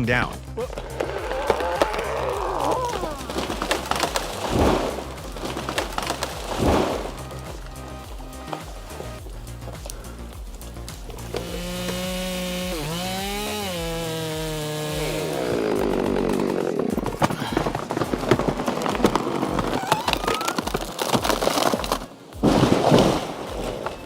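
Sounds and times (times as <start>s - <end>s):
chainsaw running at high revs: 0.7s - 19.6s
chainsaw sawing with cracks: 0.7s - 24.0s.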